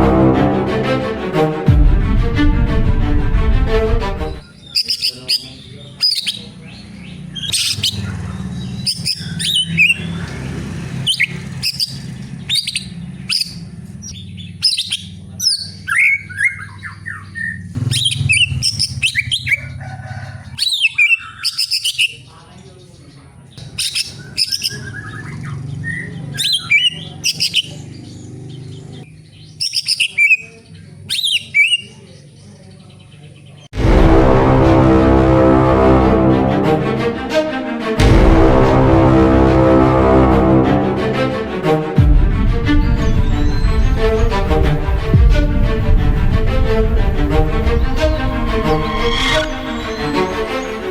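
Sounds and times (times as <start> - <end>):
bird chirping and whistling: 4.4 - 10.2, 11.0 - 19.8, 20.6 - 22.2, 23.6 - 30.5, 31.1 - 31.9, 43.3 - 44.1.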